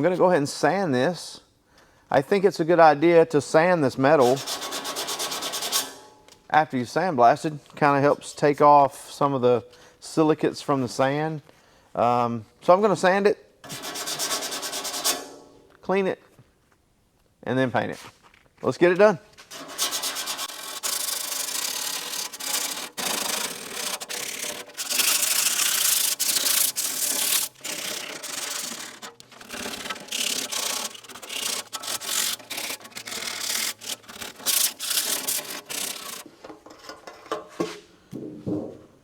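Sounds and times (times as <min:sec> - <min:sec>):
sandpaper scrubbing sheet steel: 0:04.2 - 0:05.9, 0:13.7 - 0:15.2, 0:19.5 - 0:36.3.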